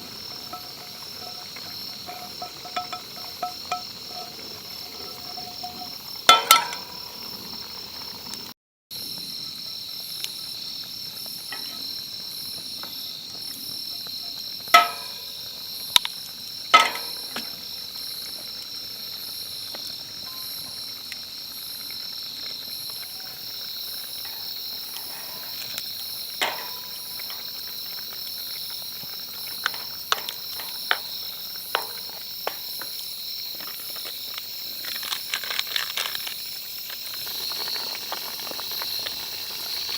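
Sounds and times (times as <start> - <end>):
sharp clicks and knocks: 0.0 - 7.0, 16.8 - 17.5, 29.6 - 33.0
insects chirping: 0.0 - 39.9.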